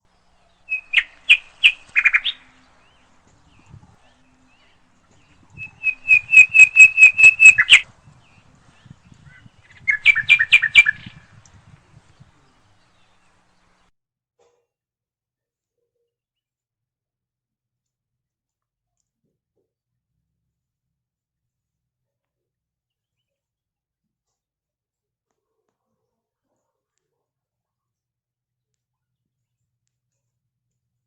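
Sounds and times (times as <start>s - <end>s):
bird calling rapid high chirps: 0.1s - 13.8s.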